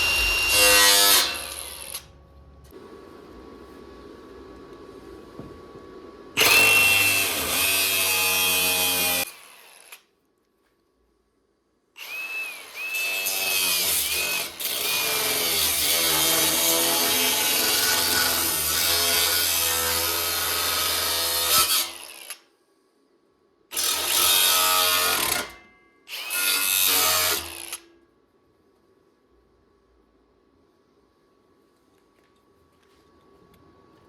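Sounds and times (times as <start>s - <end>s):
power tool cutting sheet metal: 0.0s - 2.1s, 6.4s - 10.1s, 12.0s - 22.5s, 23.7s - 27.9s.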